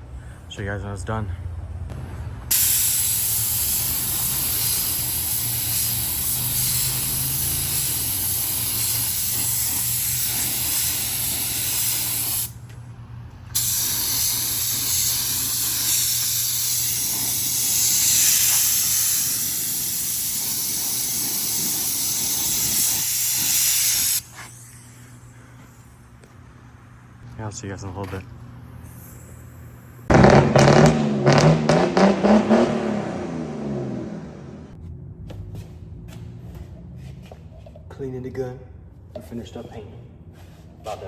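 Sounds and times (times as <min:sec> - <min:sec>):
paint spray gun hissing: 0:02.5 - 0:12.5, 0:13.6 - 0:24.3.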